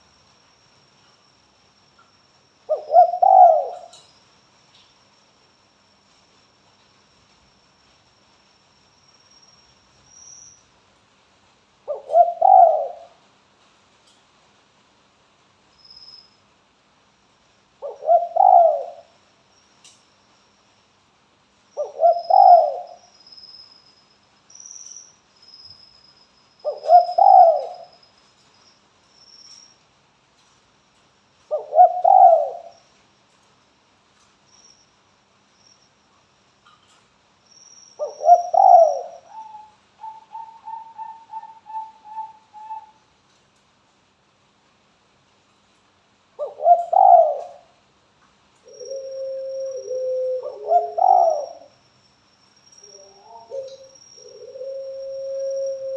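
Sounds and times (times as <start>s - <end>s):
dove cooing: 2.7s - 4.0s, 11.9s - 13.2s, 17.8s - 19.1s, 21.8s - 23.0s, 26.6s - 27.9s, 31.5s - 32.8s, 38.0s - 43.0s, 46.4s - 47.7s, 48.7s - 51.7s, 52.9s - 55.9s.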